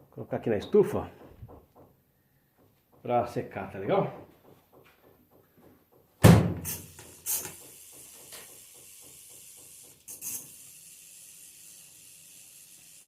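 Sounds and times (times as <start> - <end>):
door or lid banging shut: 6.2 - 6.7.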